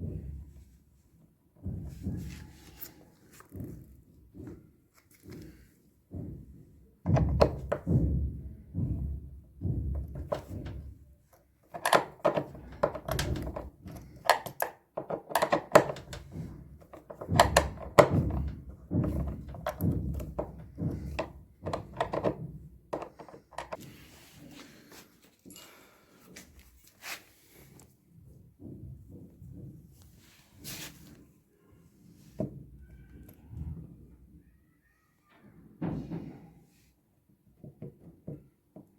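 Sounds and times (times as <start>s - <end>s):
heavy knocks and thuds: 6.1s - 14.2s, 15.0s - 23.8s.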